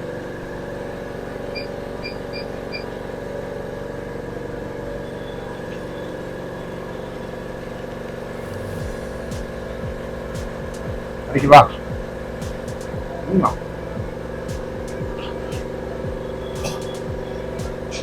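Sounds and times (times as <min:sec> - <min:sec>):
machine motor humming: 0:07.7 - 0:18.0.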